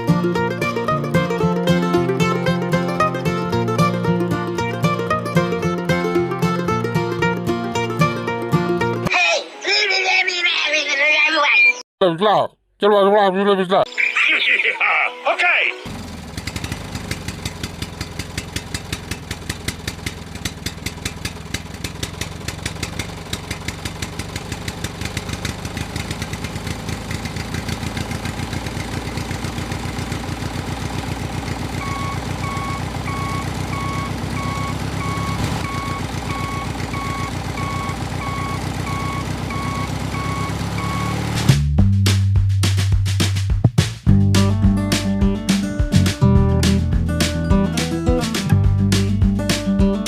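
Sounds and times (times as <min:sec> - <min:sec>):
model tractor chugging: 0:15.9 - 0:41.5
repeating electronic beep: 0:31.8 - 0:41.3.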